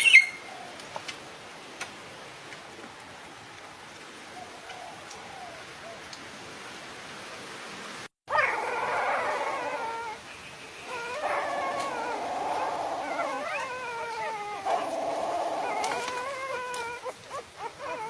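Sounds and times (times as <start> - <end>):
faint steady hiss: 0.0 - 18.0
dogs howling and whining: 8.3 - 10.2, 10.9 - 18.0.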